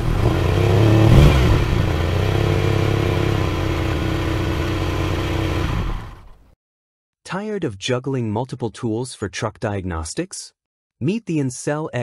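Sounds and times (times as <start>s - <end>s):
car engine droning: 0.0s - 6.4s
car engine revving: 0.0s - 6.4s.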